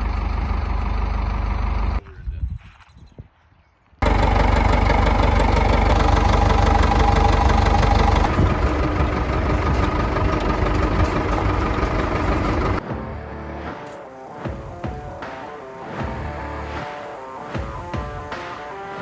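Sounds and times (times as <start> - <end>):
engine running: 0.0 - 2.0, 4.0 - 12.8.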